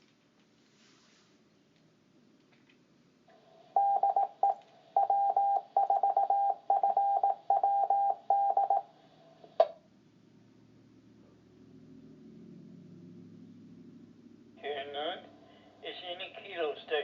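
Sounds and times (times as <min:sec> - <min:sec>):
morse code beeps: 0:03.8 - 0:08.9
radio carrier tone: 0:14.6 - 0:17.0.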